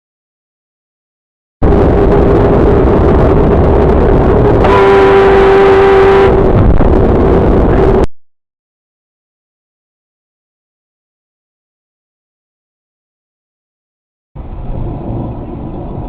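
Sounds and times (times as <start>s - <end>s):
car engine and tyre rumble: 1.6s - 8.1s, 14.4s - 16.0s
car horn: 4.6s - 6.8s.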